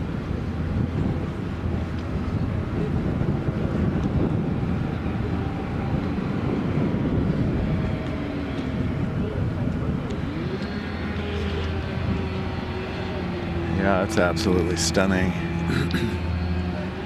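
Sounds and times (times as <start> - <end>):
engine rumbling: 0.0 - 17.0
indistinct voices: 10.2 - 16.3.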